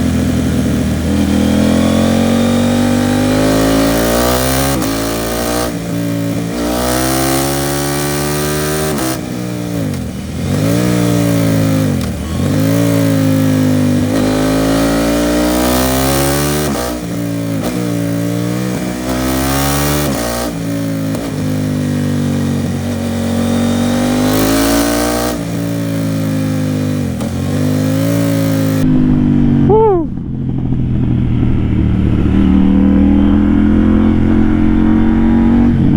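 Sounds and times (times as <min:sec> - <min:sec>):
motorcycle engine revving: 0:00.0 - 0:35.9
wind noise: 0:28.8 - 0:35.9.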